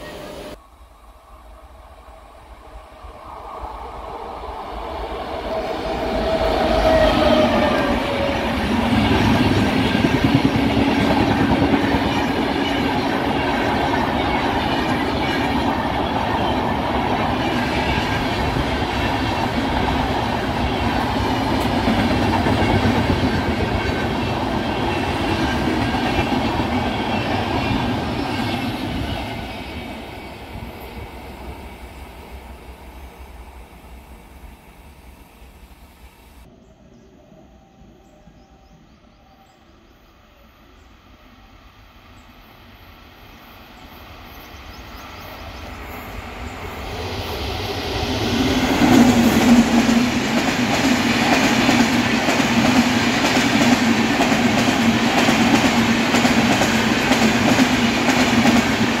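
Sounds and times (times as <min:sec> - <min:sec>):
train rumbling past: 0:00.0 - 0:59.0
train wheels clattering over rails: 0:47.0 - 0:59.0.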